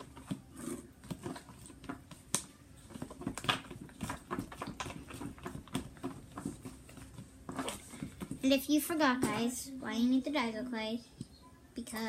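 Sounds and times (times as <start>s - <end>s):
spoon stirring sticky slime: 0.0s - 9.2s.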